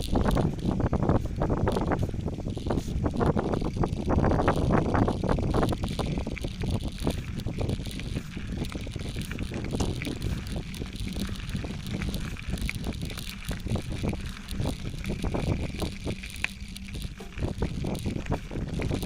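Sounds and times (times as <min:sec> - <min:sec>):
bike rattling and knocking: 0:00.0 - 0:19.0
tyres rumbling on dirt: 0:00.0 - 0:19.0
wind buffeting microphone: 0:00.0 - 0:19.0.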